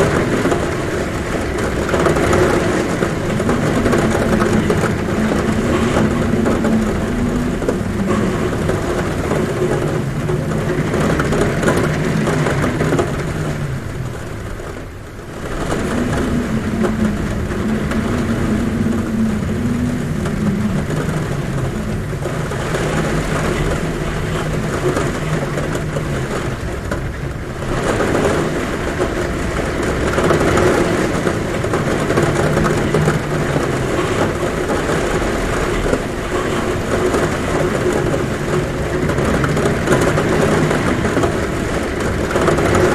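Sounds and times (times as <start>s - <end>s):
heavy rain drumming on roof: 0.0s - 42.9s
wind: 0.0s - 42.9s
low droning tones sliding down: 1.8s - 14.3s, 15.3s - 26.0s.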